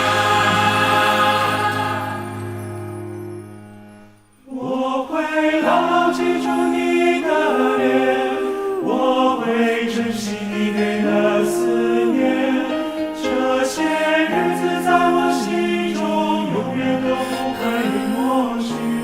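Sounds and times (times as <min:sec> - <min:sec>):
held chord: 0:00.0 - 0:09.0
choir singing harmonies: 0:00.0 - 0:19.0.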